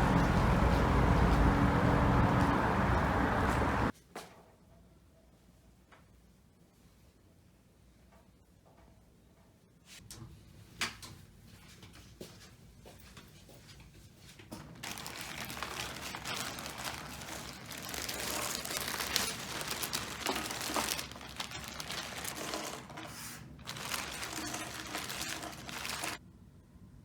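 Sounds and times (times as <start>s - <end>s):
dense crinkling crackling: 14.3s - 26.2s.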